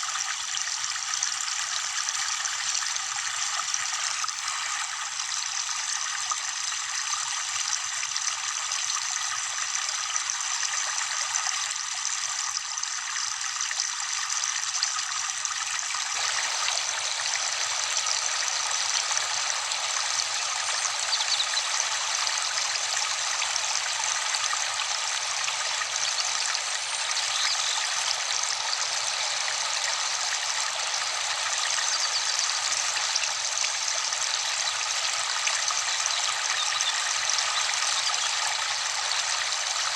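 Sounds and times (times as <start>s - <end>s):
waterfall rushing: 16.2s - 19.8s.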